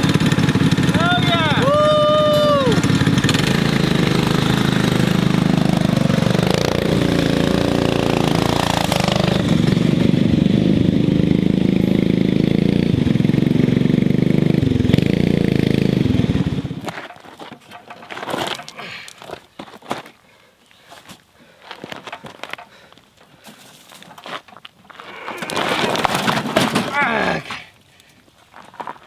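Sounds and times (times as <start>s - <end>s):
mini bike engine running: 0.0s - 17.1s.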